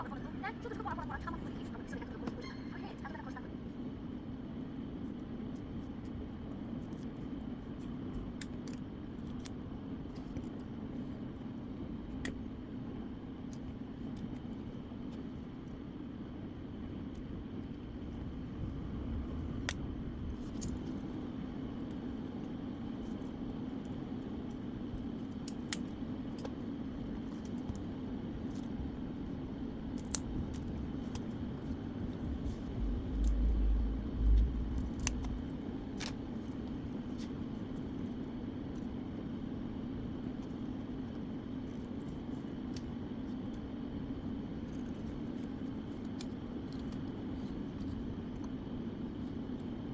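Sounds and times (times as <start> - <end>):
low equipment hum: 0.0 - 49.9
loud low rumble: 18.2 - 20.6, 32.0 - 35.8.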